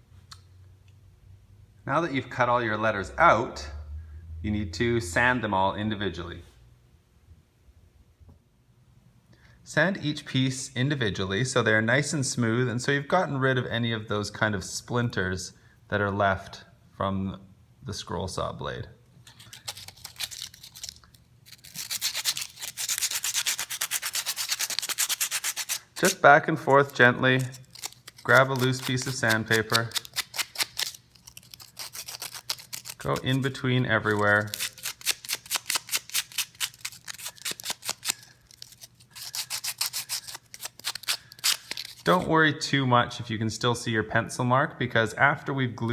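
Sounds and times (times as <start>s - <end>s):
sandpaper rubbing on wood: 21.7s - 26.2s, 27.4s - 42.1s
wood rubbed on sandpaper: 21.7s - 26.2s.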